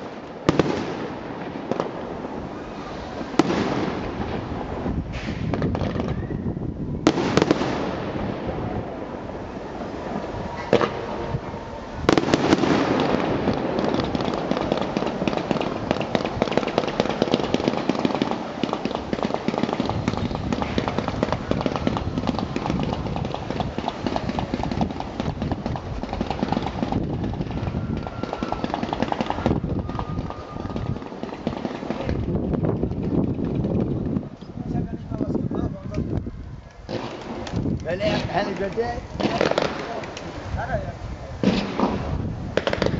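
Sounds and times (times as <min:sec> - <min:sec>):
fireworks crackling: 0:00.0 - 0:42.9
bang: 0:05.1 - 0:06.3.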